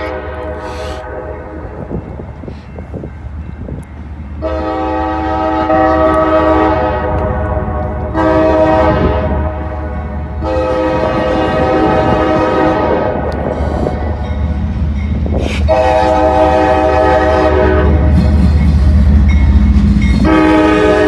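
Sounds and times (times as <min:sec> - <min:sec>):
locomotive air horn blasts: 0:00.0 - 0:01.7, 0:04.4 - 0:13.5, 0:15.7 - 0:18.3, 0:20.2 - 0:21.0
wind noise: 0:00.0 - 0:04.6, 0:05.6 - 0:21.0.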